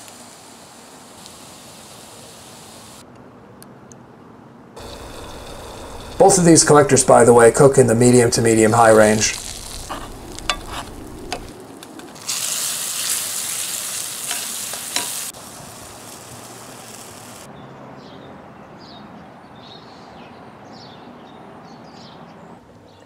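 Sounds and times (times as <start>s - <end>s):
food sizzling in skillet: 0.0s - 3.0s, 4.8s - 17.5s.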